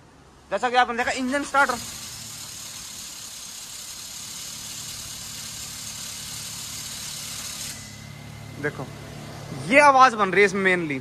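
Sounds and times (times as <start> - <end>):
car engine idling: 0.5 - 11.0
pulley running noise: 1.0 - 8.2.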